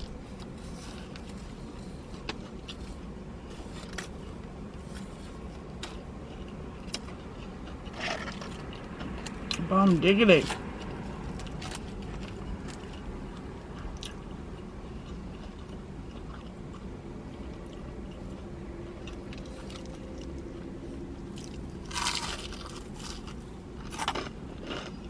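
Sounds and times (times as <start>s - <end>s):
chewing and biting food: 0.0s - 25.0s.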